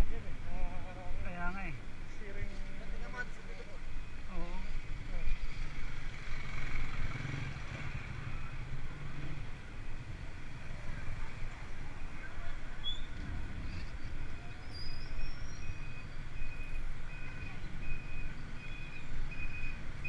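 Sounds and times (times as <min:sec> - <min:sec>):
wind and road rumble: 0:00.0 - 0:20.0
vehicle reversing beeper: 0:07.3 - 0:08.7, 0:13.7 - 0:20.0.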